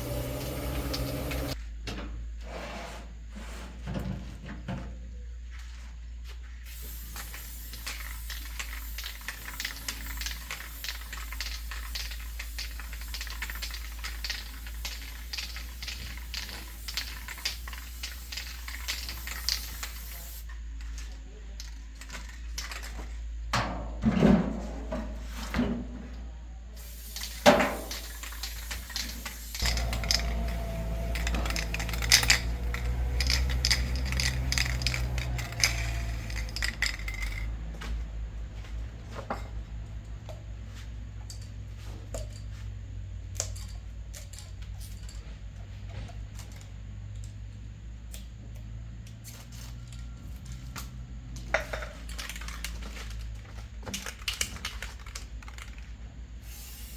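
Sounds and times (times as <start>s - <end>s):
metal parts clinking: 0.0s - 1.6s, 6.7s - 23.3s, 26.8s - 37.5s, 43.4s - 45.4s, 49.3s - 55.9s.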